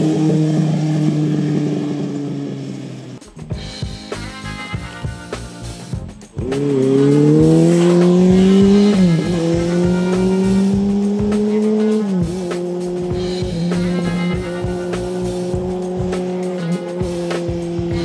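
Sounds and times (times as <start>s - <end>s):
music with drumbeat: 3.2s - 18.0s
motorcycle engine revving: 6.5s - 18.0s.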